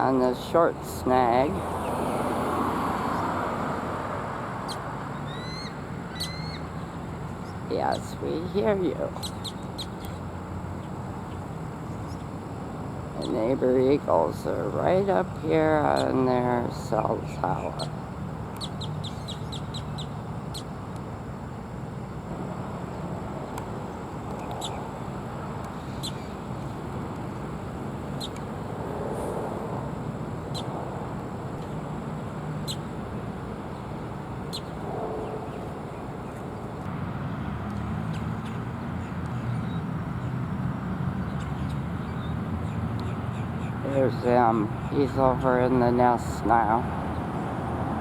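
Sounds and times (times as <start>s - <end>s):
distant traffic rumble: 0.0s - 48.0s
eagle high chirps: 4.7s - 6.7s.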